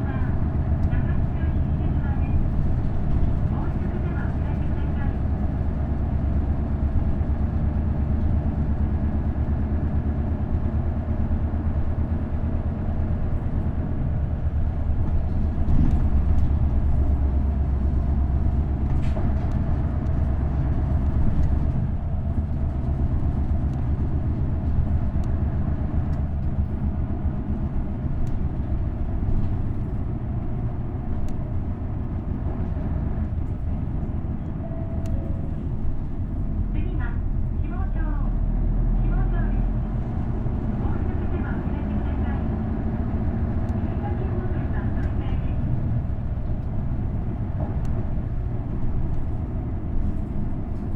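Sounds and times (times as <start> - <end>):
bus diesel engine droning: 0.0 - 50.9.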